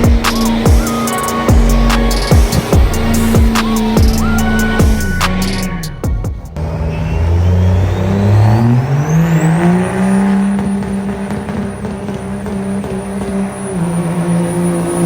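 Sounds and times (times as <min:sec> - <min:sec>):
high whine: 0:00.0 - 0:08.0
truck engine revving: 0:00.0 - 0:15.0.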